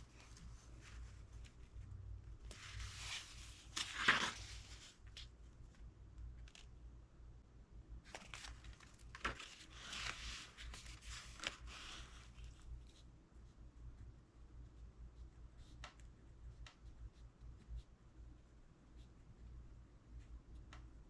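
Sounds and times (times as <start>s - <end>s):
book page rustling: 0.0s - 1.7s, 2.4s - 5.3s, 8.0s - 12.6s
low steady hum: 0.0s - 21.0s.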